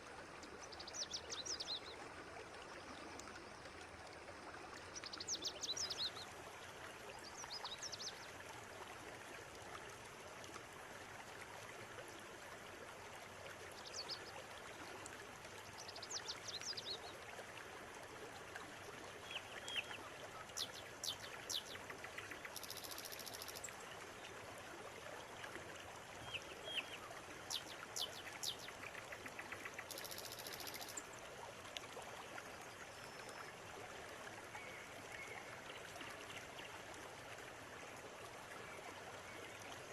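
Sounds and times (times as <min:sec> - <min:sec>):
river water running: 0:00.0 - 0:39.9
small birds chirping: 0:20.6 - 0:23.6, 0:26.2 - 0:31.0.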